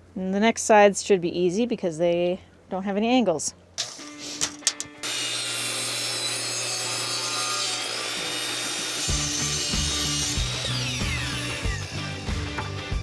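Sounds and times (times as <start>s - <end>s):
power saw cutting wood: 3.8s - 13.0s.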